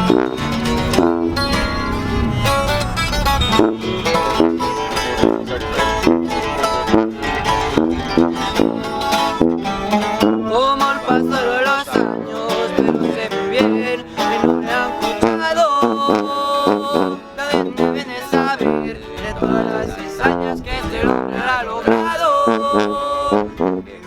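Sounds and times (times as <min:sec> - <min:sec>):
long held melodic note: 0:00.0 - 0:12.3
plucked guitar background music: 0:00.0 - 0:24.0.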